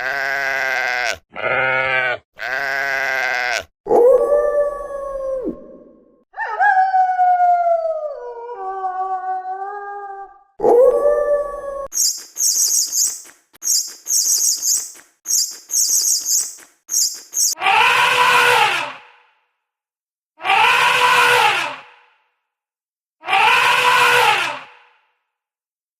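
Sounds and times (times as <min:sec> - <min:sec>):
dog-like howl: 0:03.9 - 0:11.9, 0:20.4 - 0:21.9, 0:23.2 - 0:24.7
high chirping bursts: 0:11.9 - 0:17.6
loud harsh animal call: 0:17.0 - 0:19.2, 0:20.4 - 0:22.0, 0:23.2 - 0:24.9.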